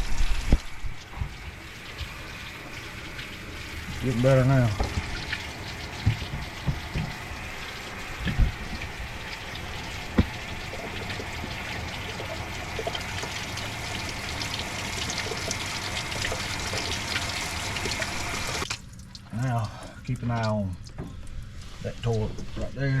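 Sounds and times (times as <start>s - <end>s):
water running and pouring out: 0.0s - 23.0s
knocks: 6.0s - 7.2s.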